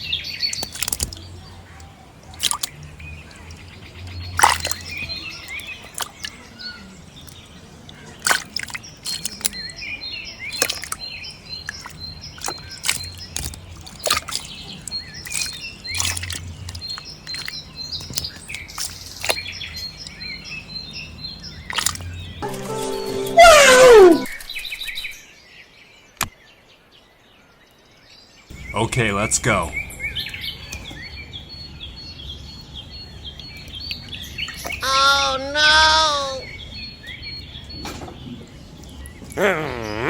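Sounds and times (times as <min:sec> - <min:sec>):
birds chirping: 0:00.0 - 0:40.0
sharp clicks or splashes: 0:00.4 - 0:20.7, 0:21.5 - 0:22.4.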